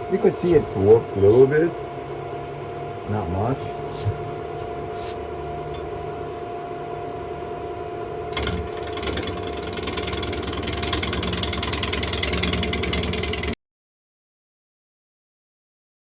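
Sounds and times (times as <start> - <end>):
wood lathe humming: 8.1 - 13.6
lathe tool rattling: 8.3 - 13.6.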